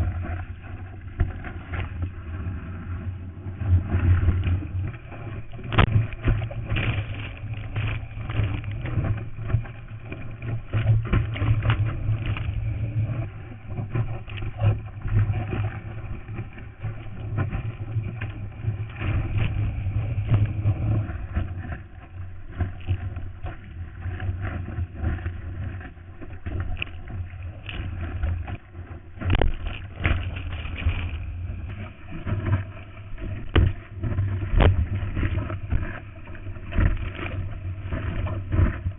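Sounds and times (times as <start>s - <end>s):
deep rumble: 0.0s - 38.9s
water rushing and splashing: 0.0s - 38.9s.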